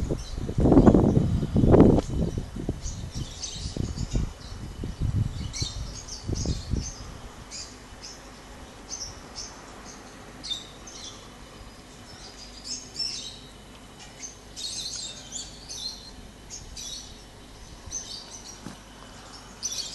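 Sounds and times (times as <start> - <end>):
wind rumble on microphone: 0.0 - 7.7
small birds chirping: 0.0 - 19.9.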